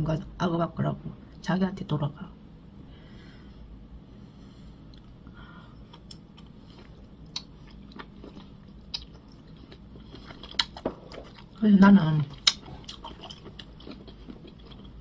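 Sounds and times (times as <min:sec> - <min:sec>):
person chewing food: 0:04.8 - 0:11.6, 0:12.2 - 0:15.0.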